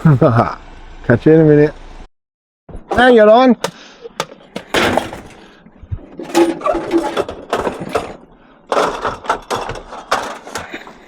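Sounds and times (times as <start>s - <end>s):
knocks and clatter: 3.6s - 11.0s.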